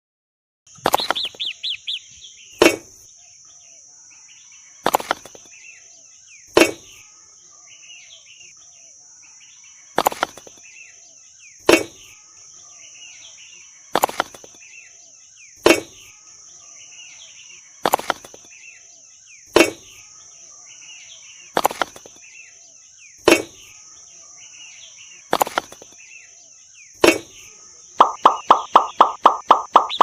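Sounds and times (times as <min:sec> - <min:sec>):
faint bird chirps: 0:00.8 - 0:30.0
fast short pulses: 0:28.0 - 0:30.0
sharp thud or swish: 0:28.0 - 0:30.0.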